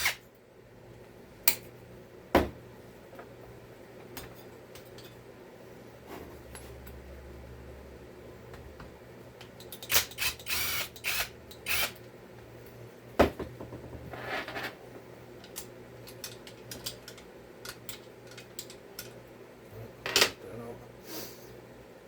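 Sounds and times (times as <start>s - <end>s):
knock on workbench: 2.4s - 2.6s, 13.2s - 14.0s
chainsaw parts clicking and rattling: 15.4s - 19.2s.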